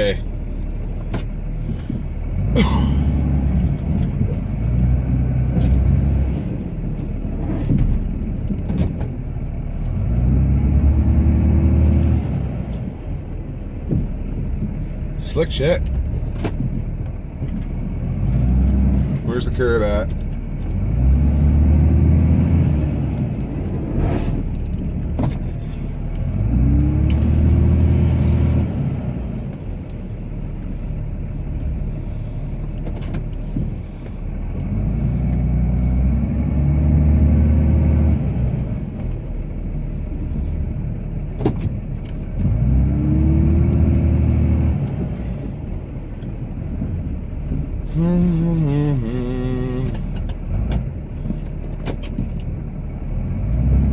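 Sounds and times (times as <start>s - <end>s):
diesel engine revving under load: 0.0s - 53.9s.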